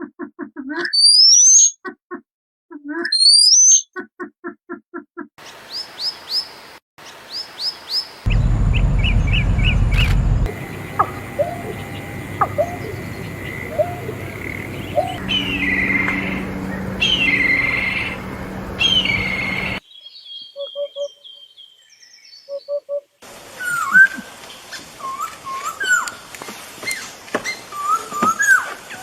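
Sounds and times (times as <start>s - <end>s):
songbirds whistling: 9.0s - 22.8s, 26.9s - 29.0s.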